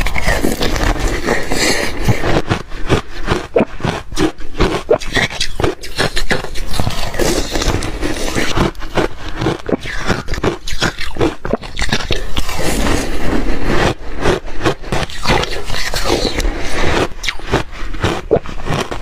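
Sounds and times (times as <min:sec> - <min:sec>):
ice being crunched and chewed: 0:00.0 - 0:19.0.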